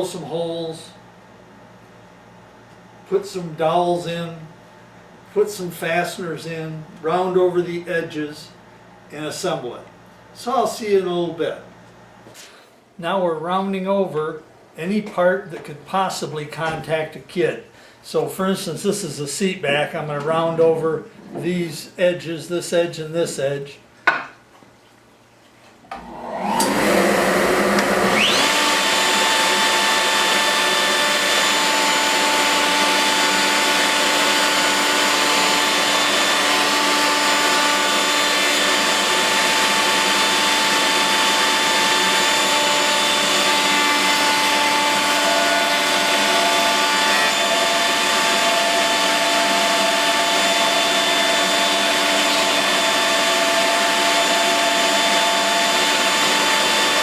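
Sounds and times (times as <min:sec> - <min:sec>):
electric router whining: 0:25.9 - 0:57.0.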